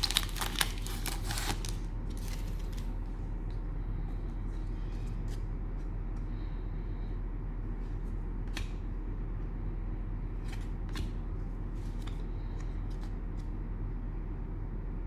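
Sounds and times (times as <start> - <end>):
cards and wrappers clicking: 0.0 - 2.9
steady low hum: 0.0 - 15.0.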